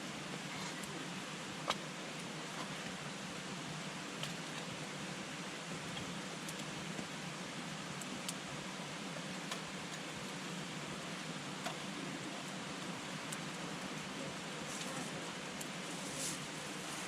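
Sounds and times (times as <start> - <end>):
campfire flames hissing: 0.0 - 17.0
fire crackling and popping: 5.6 - 8.6, 9.2 - 17.0.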